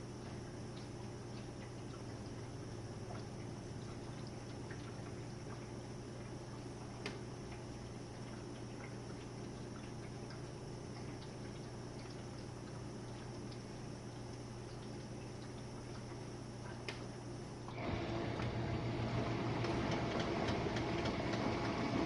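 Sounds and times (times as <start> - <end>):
water trickling and dripping: 0.0 - 17.4
dishwasher humming: 0.0 - 22.0
small ticks: 8.3 - 17.1.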